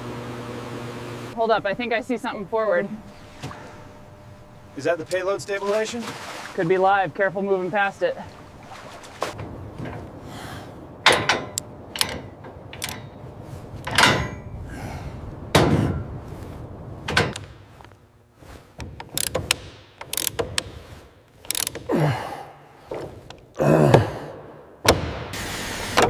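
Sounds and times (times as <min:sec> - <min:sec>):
low steady background hum: 0:01.3 - 0:25.1
mechanical clanks and knocks: 0:09.3 - 0:14.6, 0:15.4 - 0:16.3, 0:17.0 - 0:17.7, 0:18.7 - 0:21.9, 0:24.8 - 0:25.3.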